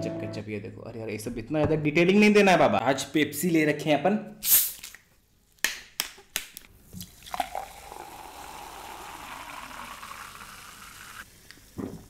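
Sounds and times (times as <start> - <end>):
soda pouring and fizzing: 6.9 - 12.0.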